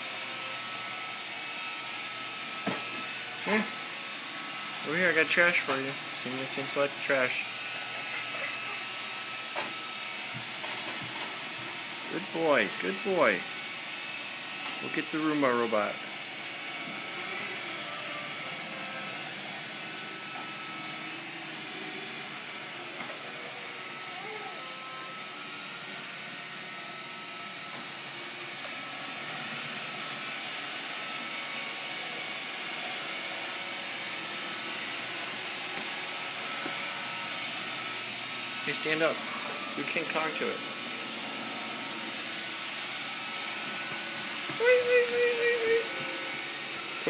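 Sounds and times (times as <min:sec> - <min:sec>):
robot vacuum running: 0:00.0 - 0:47.0.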